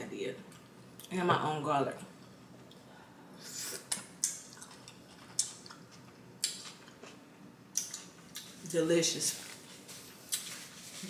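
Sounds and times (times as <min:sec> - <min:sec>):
wet mouth smacks and clicks: 0:03.9 - 0:04.7, 0:07.8 - 0:08.5
quiet chewing: 0:03.9 - 0:07.2.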